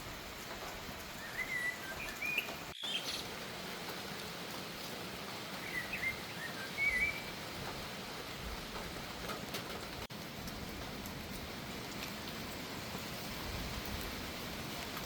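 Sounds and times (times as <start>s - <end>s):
rain hissing: 0.0s - 15.0s
bird chirping: 1.2s - 3.3s, 5.6s - 7.3s.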